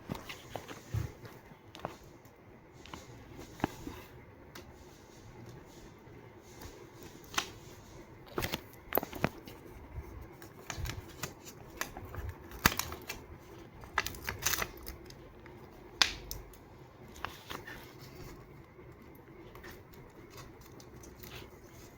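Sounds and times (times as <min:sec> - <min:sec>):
paper clicking and rustling: 0:00.1 - 0:02.1, 0:06.6 - 0:07.6, 0:08.3 - 0:21.9.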